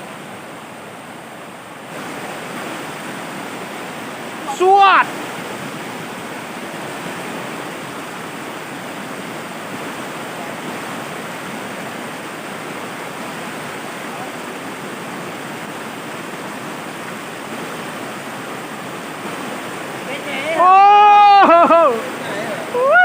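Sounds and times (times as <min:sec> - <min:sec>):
water rushing over rocks: 0:00.0 - 0:23.0.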